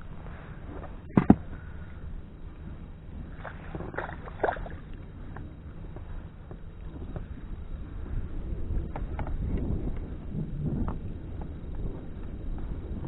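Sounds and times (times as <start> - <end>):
low wind rumble: 0.0 - 13.0
knocks in inflatable boat: 1.1 - 1.4.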